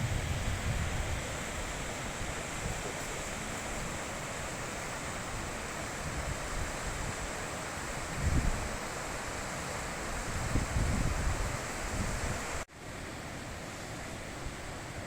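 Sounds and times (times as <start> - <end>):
wind rumble on microphone: 0.0 - 3.2, 5.3 - 8.9, 10.0 - 12.6
river rushing: 0.0 - 15.0.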